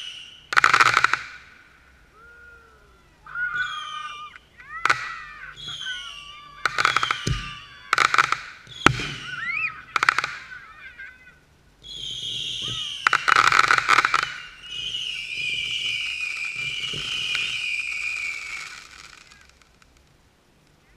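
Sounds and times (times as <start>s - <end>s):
firework bangs: 0.0s - 1.8s, 3.6s - 20.0s
firework crackling: 0.0s - 20.9s
firework shrill hiss: 3.6s - 10.6s, 11.8s - 19.8s.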